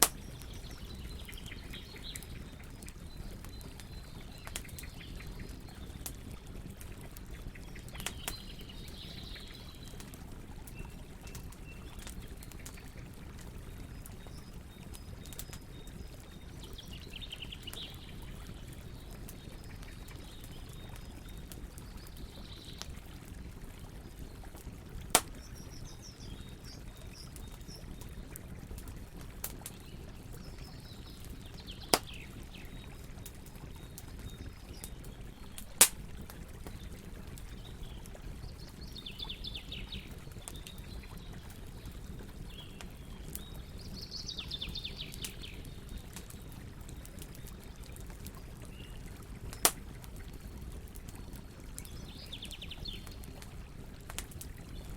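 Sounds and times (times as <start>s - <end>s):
sharp fire pops: 0.0s - 0.5s, 25.1s - 25.7s, 31.8s - 32.3s, 35.6s - 36.1s, 49.5s - 49.8s
campfire crackling: 0.0s - 54.9s
birds chirping: 0.1s - 6.1s.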